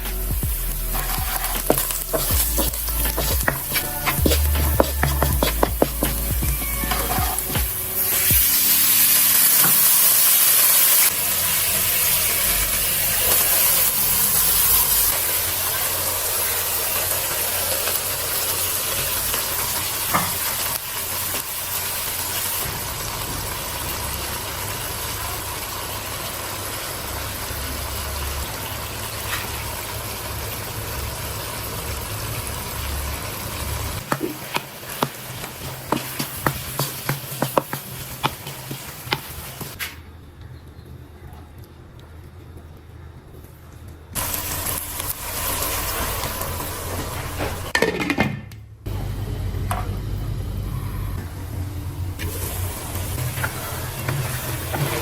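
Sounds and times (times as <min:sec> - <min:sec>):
food sizzling in a pot: 0:00.0 - 0:39.8, 0:44.2 - 0:47.8, 0:52.2 - 0:55.0.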